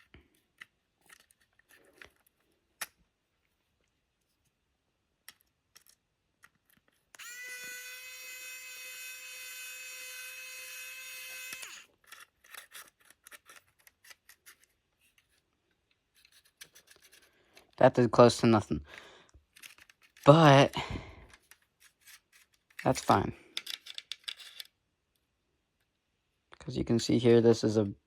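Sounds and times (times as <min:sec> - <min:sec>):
power tool motor whining: 0:07.2 - 0:11.9.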